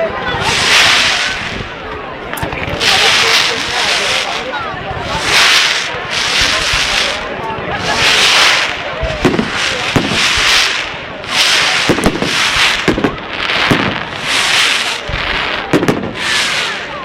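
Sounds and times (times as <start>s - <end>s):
hiss of fireworks: 0.0s - 17.0s
firecracker bangs: 0.4s - 1.7s, 7.8s - 16.9s.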